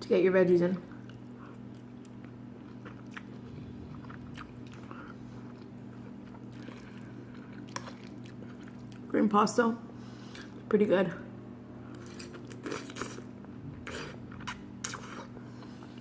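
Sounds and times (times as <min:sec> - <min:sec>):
steady low hum: 0:00.0 - 0:16.0
person chewing food: 0:00.9 - 0:09.1, 0:11.8 - 0:16.0.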